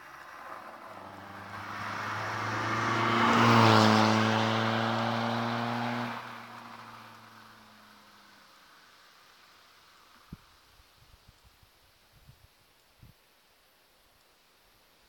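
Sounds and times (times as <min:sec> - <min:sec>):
diesel car driving past: 0:00.0 - 0:08.3.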